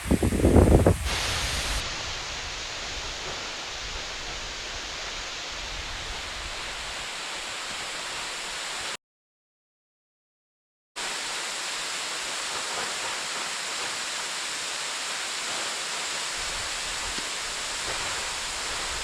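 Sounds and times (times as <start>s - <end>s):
wind buffeting microphone: 0.0s - 7.0s
waterfall rushing: 0.0s - 9.0s, 11.0s - 19.0s.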